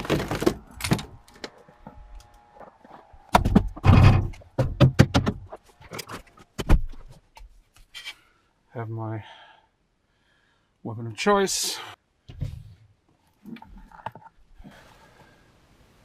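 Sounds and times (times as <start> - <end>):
car door thunks and knocks: 3.3 - 5.5.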